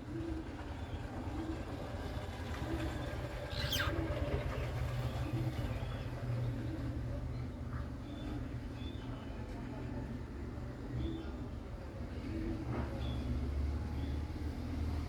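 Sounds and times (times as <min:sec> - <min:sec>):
cockatiel chirp: 0:03.5 - 0:04.0.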